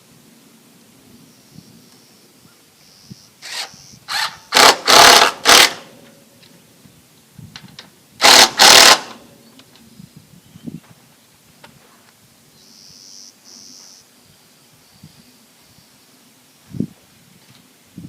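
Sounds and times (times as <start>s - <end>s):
power drill driving screws: 3.4s - 5.9s, 8.2s - 9.2s.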